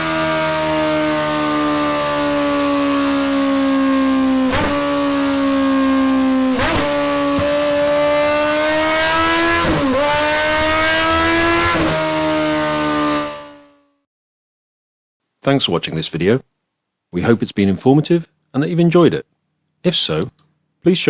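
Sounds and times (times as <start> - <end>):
motorcycle engine at high revs: 0.0 - 14.0.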